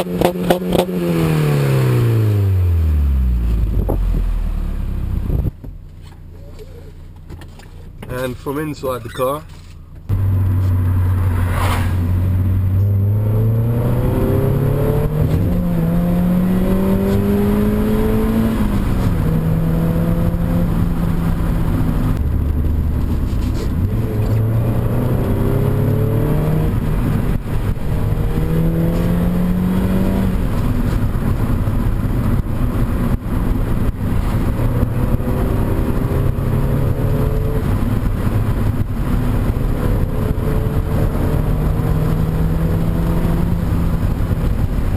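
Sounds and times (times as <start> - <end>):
car engine revving from inside: 10.1 - 31.5, 34.2 - 44.9.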